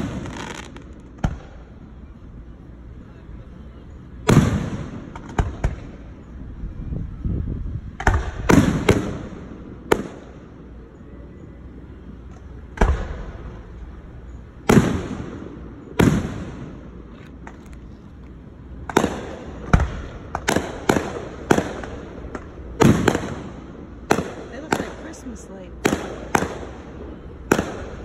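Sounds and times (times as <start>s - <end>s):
fireworks bangs echoing: 0.0s - 1.8s, 4.1s - 6.1s, 8.0s - 10.7s, 12.6s - 14.0s, 14.6s - 17.5s, 18.8s - 28.0s.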